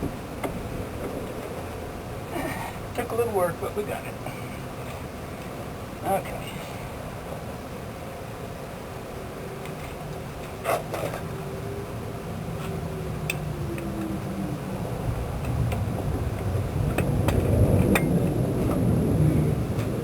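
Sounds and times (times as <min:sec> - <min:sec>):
jet aircraft rumble: 0:11.9 - 0:20.0.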